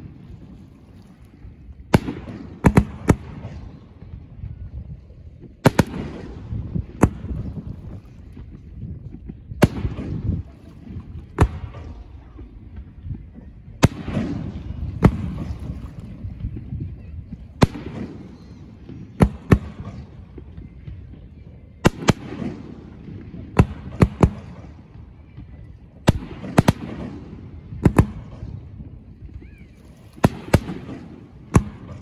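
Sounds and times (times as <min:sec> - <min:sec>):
firework bangs: 0:00.0 - 0:04.6, 0:05.4 - 0:32.0
rumbling echo: 0:00.0 - 0:32.0.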